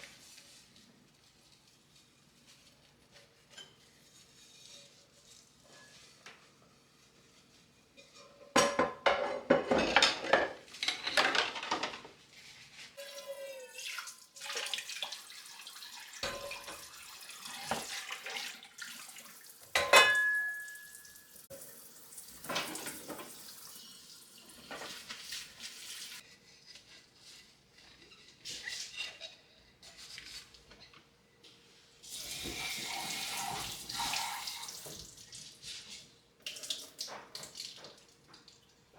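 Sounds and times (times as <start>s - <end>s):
dishes clattering: 8.0s - 12.1s, 16.2s - 16.9s, 19.7s - 21.0s, 22.5s - 23.4s.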